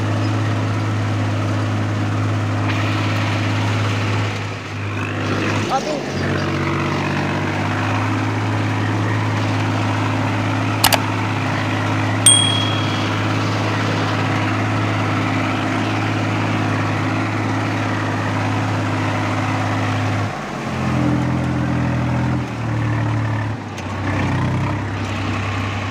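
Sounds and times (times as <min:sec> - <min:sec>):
metallic clink with ring: 0:12.3 - 0:13.8.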